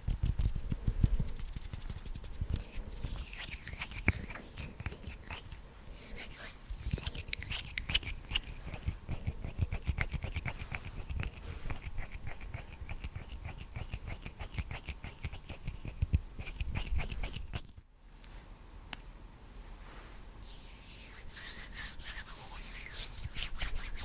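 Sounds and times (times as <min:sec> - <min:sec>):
hands rubbing and patting: 0:00.0 - 0:18.4, 0:19.8 - 0:24.0.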